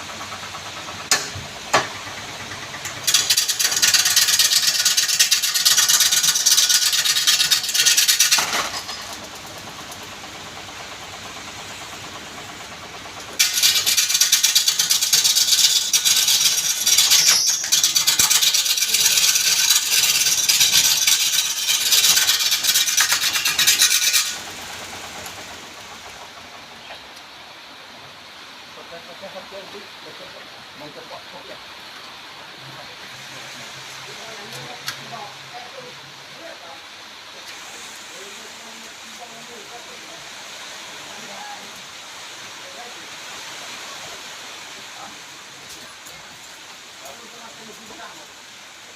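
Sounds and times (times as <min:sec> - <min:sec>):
tool rasping against turning wood: 0:13.4 - 0:24.8.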